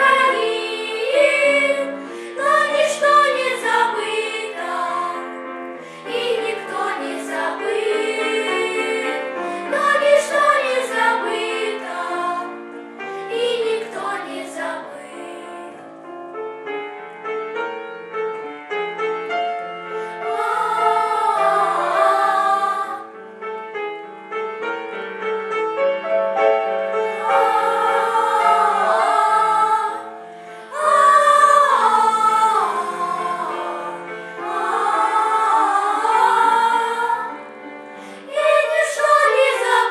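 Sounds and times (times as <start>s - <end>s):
vocal ensemble singing: 0.0s - 15.8s, 20.0s - 23.2s, 27.0s - 39.9s.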